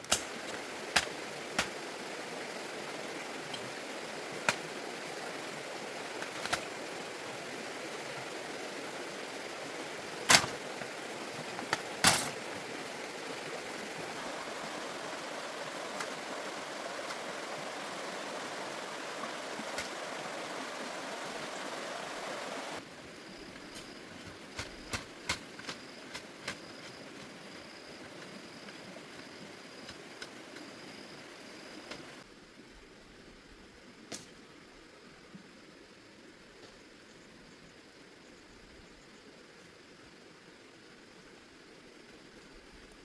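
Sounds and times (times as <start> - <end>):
steady rushing noise: 0.0 - 22.8.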